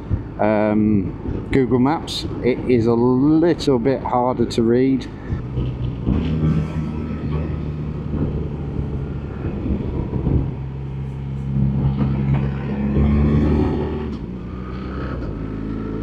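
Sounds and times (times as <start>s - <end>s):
wind noise: 0.0s - 16.0s
motorcycle engine running: 5.2s - 16.0s.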